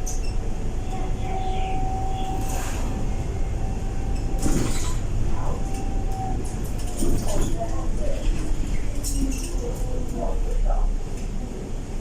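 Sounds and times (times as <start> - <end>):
bus engine rumble: 0.0 - 12.0.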